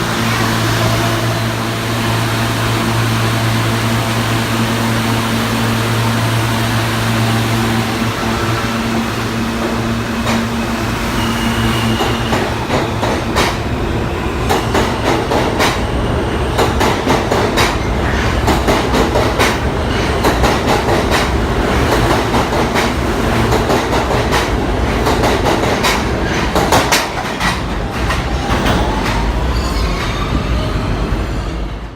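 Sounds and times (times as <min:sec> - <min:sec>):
subway train rumbling: 0:00.0 - 0:31.9
train whine: 0:00.0 - 0:31.9.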